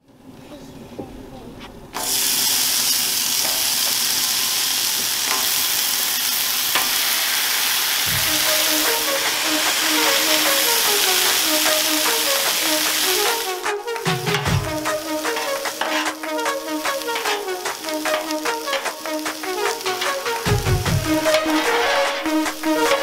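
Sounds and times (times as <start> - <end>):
meat sizzling on griddle: 2.0 - 23.0
simple background music: 8.0 - 23.0.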